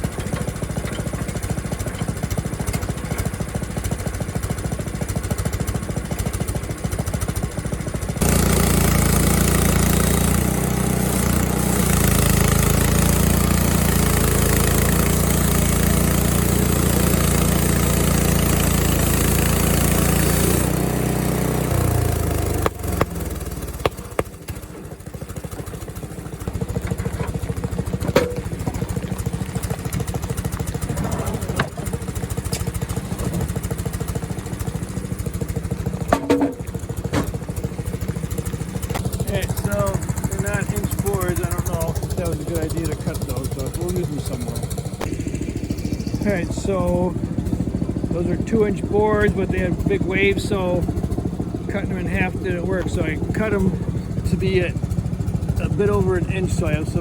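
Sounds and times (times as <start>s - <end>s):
small gas engine running: 0.0s - 57.0s
band saw blade cutting wood: 8.2s - 25.0s
sharp knocks: 22.4s - 24.9s, 28.0s - 28.8s, 36.1s - 37.3s.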